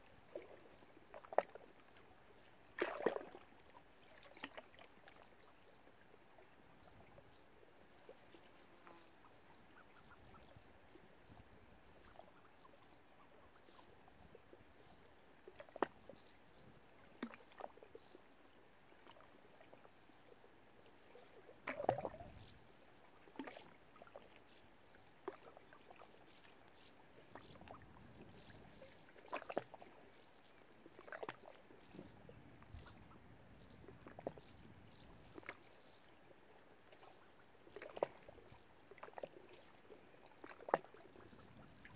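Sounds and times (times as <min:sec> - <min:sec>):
water lapping: 0:00.0 - 0:41.9
small splashes: 0:00.3 - 0:07.1, 0:15.4 - 0:16.3, 0:17.0 - 0:18.2, 0:21.0 - 0:33.0, 0:33.8 - 0:36.0, 0:36.8 - 0:41.9.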